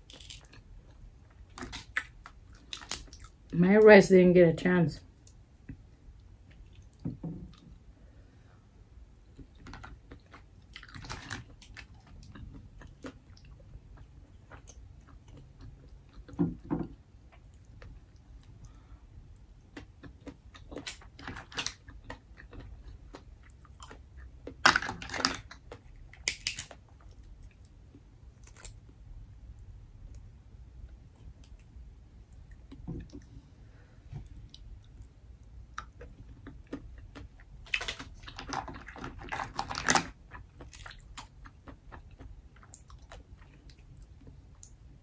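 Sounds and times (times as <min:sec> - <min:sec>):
person chewing mussels: 0:00.0 - 0:03.5, 0:09.1 - 0:29.0, 0:34.2 - 0:45.0.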